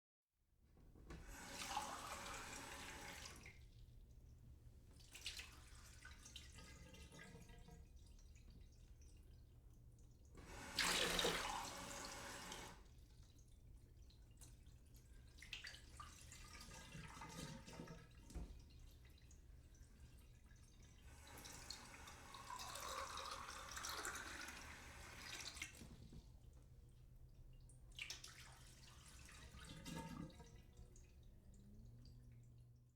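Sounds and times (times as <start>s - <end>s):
tap water gushing: 1.0s - 4.3s, 5.0s - 32.8s
water dripping and splashing: 3.4s - 10.4s, 13.0s - 21.0s, 21.6s - 32.9s
water stream filling glass: 21.2s - 25.7s.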